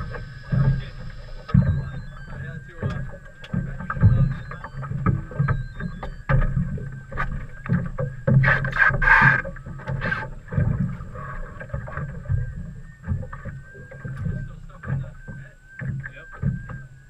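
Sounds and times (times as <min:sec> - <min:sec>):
boat knocks: 0:00.0 - 0:17.0
water sloshing: 0:00.0 - 0:17.0
wind buffeting: 0:00.0 - 0:17.0.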